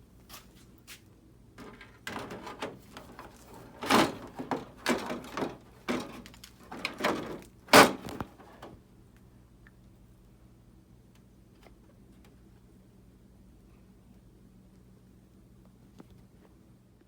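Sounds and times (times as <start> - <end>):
knocks clunks and scrapes of handling: 1.6 - 8.8.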